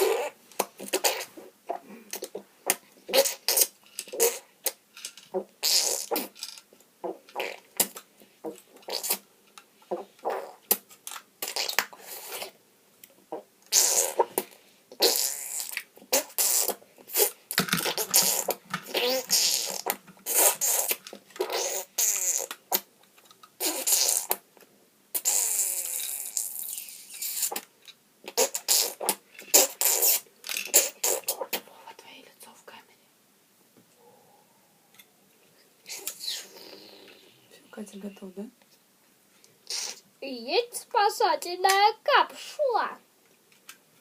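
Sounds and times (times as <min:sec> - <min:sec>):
child making mouth sound effects: 0:00.0 - 0:04.8, 0:05.4 - 0:06.4, 0:07.0 - 0:09.2, 0:09.9 - 0:10.8, 0:13.3 - 0:22.9, 0:23.6 - 0:24.4, 0:25.2 - 0:27.7, 0:28.3 - 0:31.7, 0:35.9 - 0:37.6, 0:39.6 - 0:43.0.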